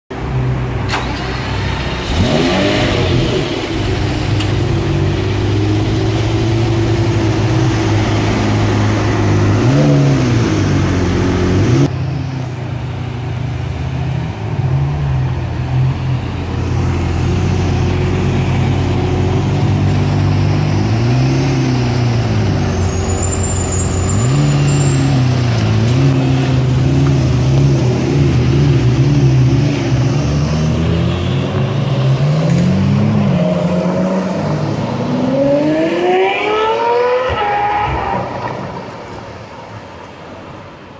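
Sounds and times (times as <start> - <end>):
car engine revving: 0.9 - 11.9, 24.2 - 38.8.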